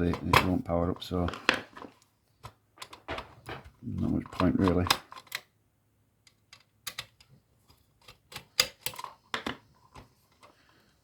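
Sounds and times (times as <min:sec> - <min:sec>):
plastic and metal parts clicking: 0:01.3 - 0:05.5, 0:06.2 - 0:07.4, 0:08.0 - 0:10.5.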